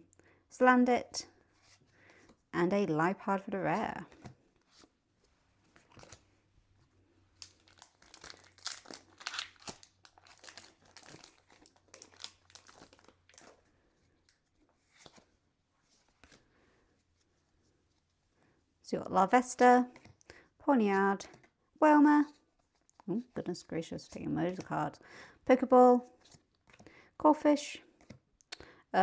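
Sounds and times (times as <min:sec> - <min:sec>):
foil wrapper crinkling and tearing: 0:07.4 - 0:13.6.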